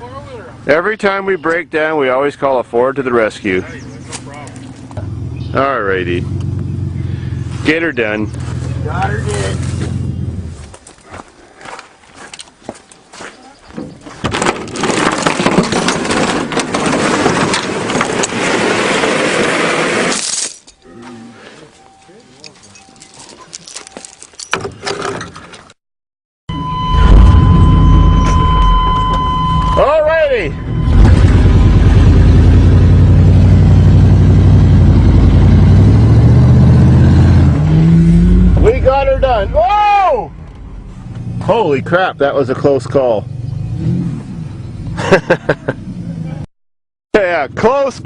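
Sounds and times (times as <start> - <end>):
vehicle engine noise: 2.1 - 11.3, 26.5 - 46.5
rattling and clanking: 13.8 - 18.6, 22.5 - 25.8.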